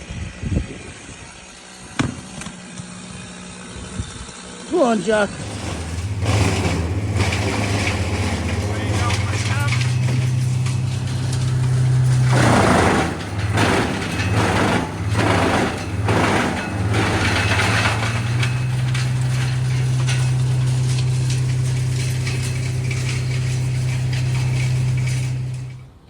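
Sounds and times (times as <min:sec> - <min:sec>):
diesel engine running: 0:01.1 - 0:26.0
wood cracking and crunching: 0:05.4 - 0:26.0.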